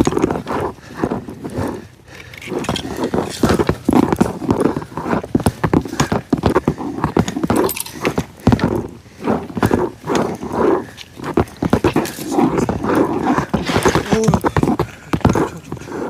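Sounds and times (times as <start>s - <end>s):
footsteps: 0.0s - 16.0s
person panting: 0.0s - 16.0s
fishing gear rattling: 7.4s - 8.4s.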